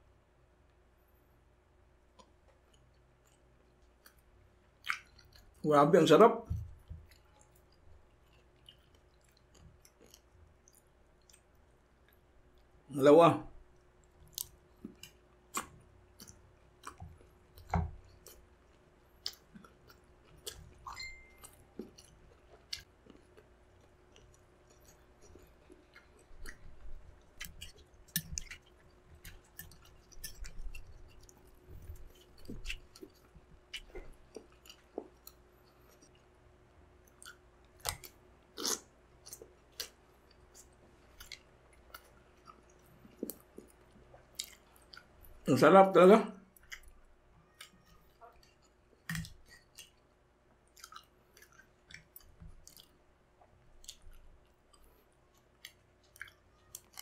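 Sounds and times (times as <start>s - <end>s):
wet chewing sounds: 2.1s - 5.6s, 6.4s - 12.8s, 13.6s - 45.5s, 46.4s - 57.0s
mouth clicks and smacks: 2.2s - 5.6s, 14.3s - 18.4s, 19.2s - 36.2s, 46.5s - 50.1s, 50.7s - 57.0s.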